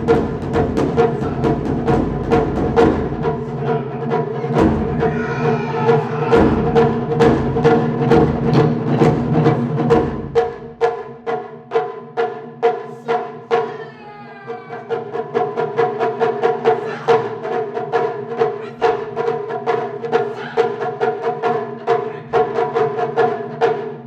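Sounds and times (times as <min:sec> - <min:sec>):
deep big drum beats: 0:00.0 - 0:13.8
drum ensemble sharp strikes: 0:00.0 - 0:24.0.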